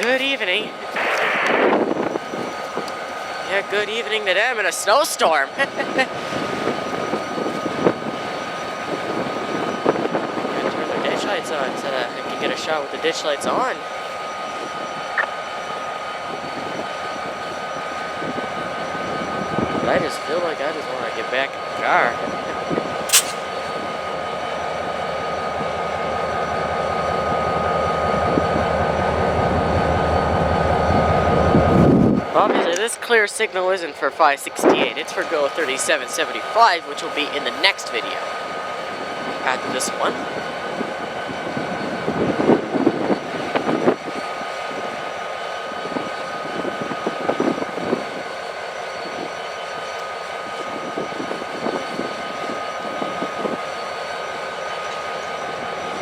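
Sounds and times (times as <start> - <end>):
diesel locomotive engine rumbling: 0.0 - 56.0
steady high whine: 0.8 - 4.1
wind buffeting the microphone: 1.0 - 3.6, 5.7 - 12.5, 38.5 - 45.1.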